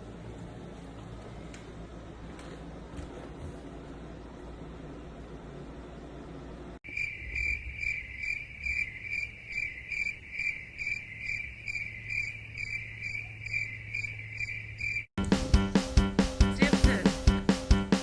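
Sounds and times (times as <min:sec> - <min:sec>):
cricket chirping: 0:06.8 - 0:15.1.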